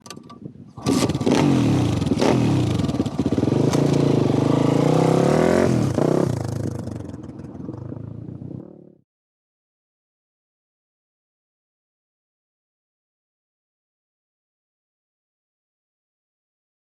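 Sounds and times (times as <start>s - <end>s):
motorbike engine revving: 0.8s - 9.0s.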